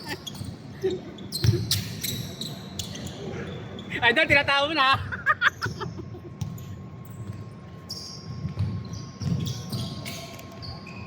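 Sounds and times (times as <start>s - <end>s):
shoe squeaks: 0.0s - 4.1s, 6.4s - 11.0s
basketball bouncing: 6.4s - 6.6s, 8.3s - 10.0s.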